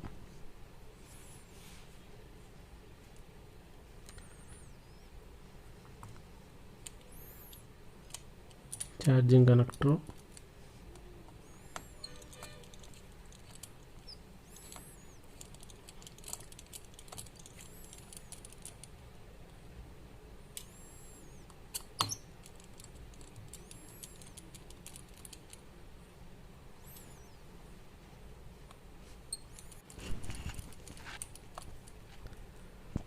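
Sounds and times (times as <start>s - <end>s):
faint high chirps: 4.1s - 5.2s, 11.1s - 12.8s, 26.8s - 27.5s.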